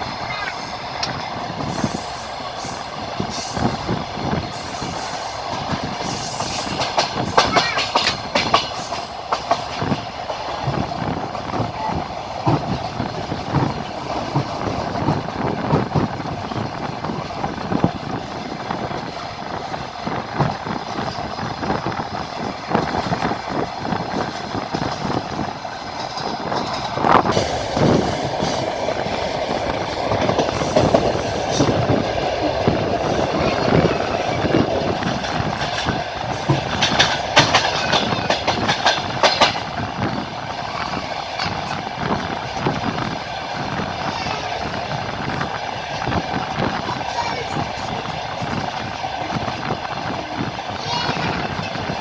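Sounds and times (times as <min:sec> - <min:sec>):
train wheels clattering over rail joints: 0:00.8 - 0:52.0.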